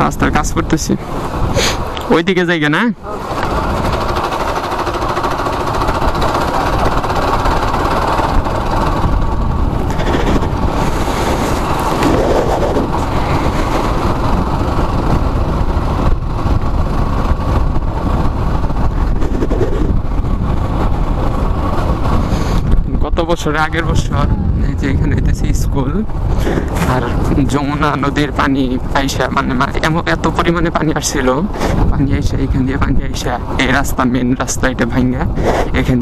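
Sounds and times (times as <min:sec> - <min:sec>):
motorcycle engine running: 0:00.0 - 0:36.0
wind and road noise: 0:00.0 - 0:36.0.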